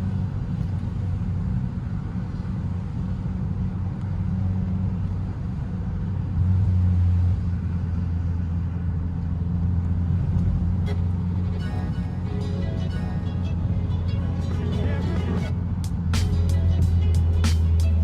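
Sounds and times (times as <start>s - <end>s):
car engine and exhaust drone: 0.0s - 18.0s.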